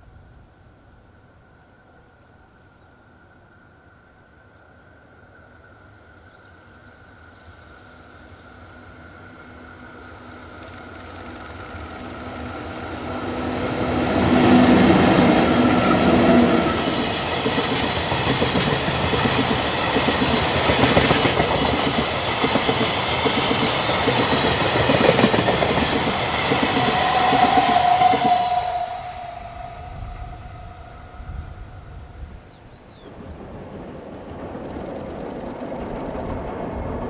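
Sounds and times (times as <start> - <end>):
locomotive hum: 6.7 - 32.7
train wheels clickety-clack: 10.4 - 28.9.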